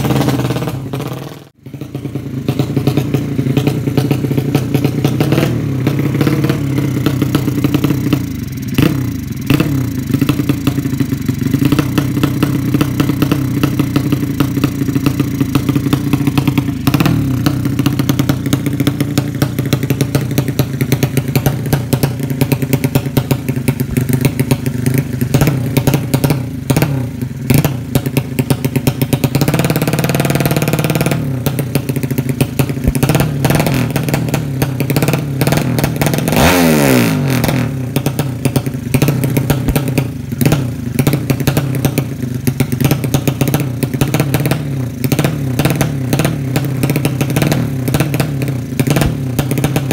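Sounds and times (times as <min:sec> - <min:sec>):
motorcycle engine crackly idle: 0:00.0 - 0:49.9.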